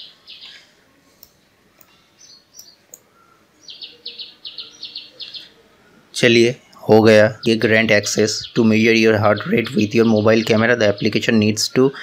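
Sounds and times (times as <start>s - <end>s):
small bird chirping: 0.0s - 0.6s, 1.2s - 6.0s, 6.7s - 11.5s
soft clicks: 1.2s - 2.0s, 2.6s - 3.1s.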